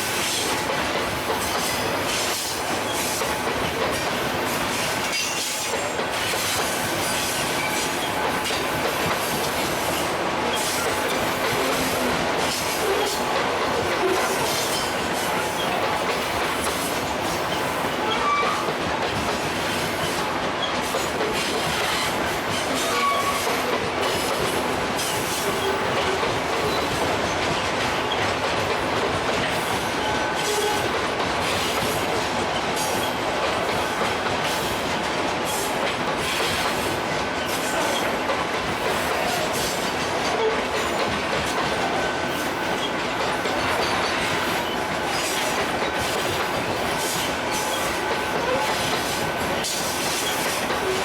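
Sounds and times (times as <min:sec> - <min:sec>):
train wheels clacking on rails: 0:00.0 - 0:51.0
wheel squeals on rail: 0:04.5 - 0:13.3, 0:16.6 - 0:18.8, 0:19.7 - 0:27.4, 0:29.6 - 0:32.0, 0:41.6 - 0:51.0.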